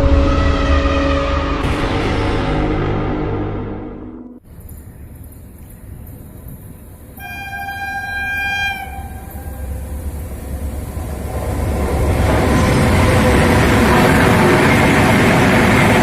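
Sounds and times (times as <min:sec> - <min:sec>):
low rumble of train: 0:00.0 - 0:16.0
train horn blast: 0:07.2 - 0:10.9.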